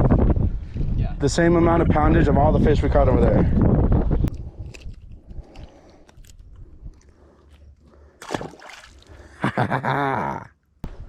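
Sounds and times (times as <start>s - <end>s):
splashing at water's edge: 8.2s - 9.4s.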